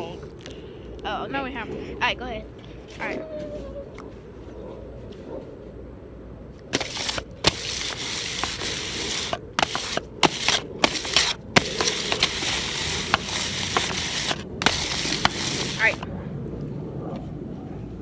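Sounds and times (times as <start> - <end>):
plastic packaging crinkling: 6.8 - 16.0.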